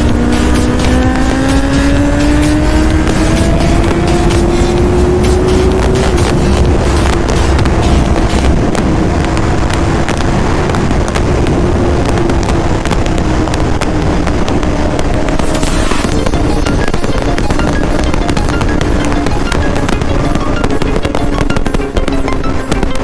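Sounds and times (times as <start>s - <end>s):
motorcycle engine at high revs: 0.0s - 23.0s
sharp crackles: 0.0s - 23.0s
wind noise: 0.0s - 23.0s.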